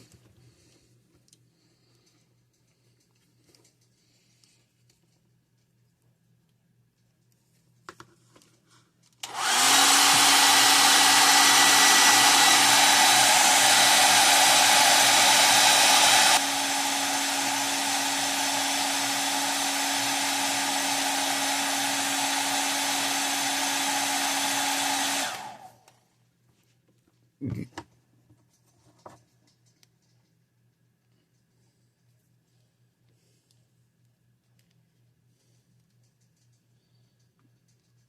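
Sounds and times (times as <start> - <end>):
hot-air blower hissing and humming: 9.2 - 25.9.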